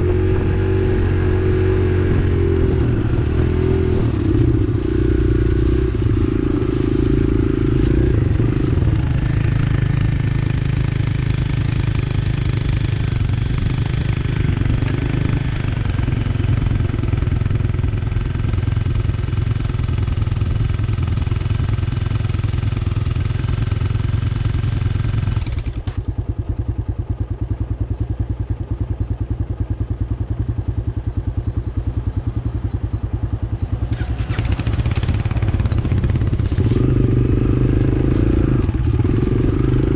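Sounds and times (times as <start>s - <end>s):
wind noise: 0.0s - 17.4s
dirt bike engine running: 0.0s - 39.9s.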